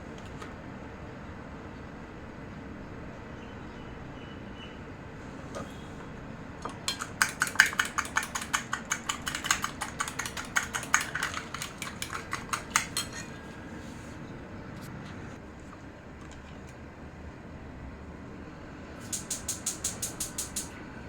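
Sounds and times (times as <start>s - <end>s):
utensil clinking against dish: 6.6s - 13.4s.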